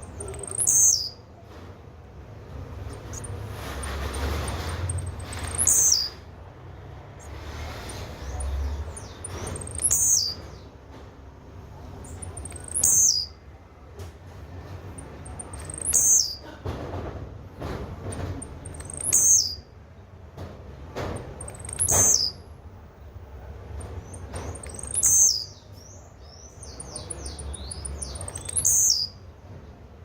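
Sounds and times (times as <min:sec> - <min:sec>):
bird singing short high song: 0:00.0 - 0:01.3, 0:02.9 - 0:06.3, 0:07.2 - 0:10.8, 0:12.0 - 0:13.4, 0:15.0 - 0:16.5, 0:18.6 - 0:19.8, 0:21.3 - 0:22.5, 0:23.8 - 0:29.3.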